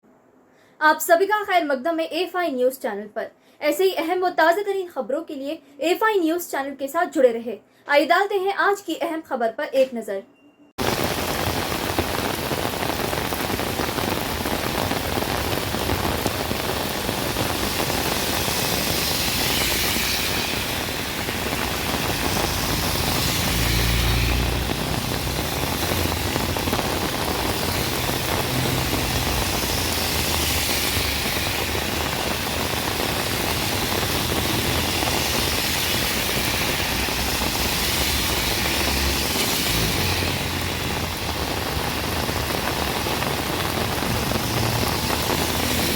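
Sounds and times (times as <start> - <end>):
heavy rain hissing: 10.8 - 45.9
low rumble: 43.4 - 45.9.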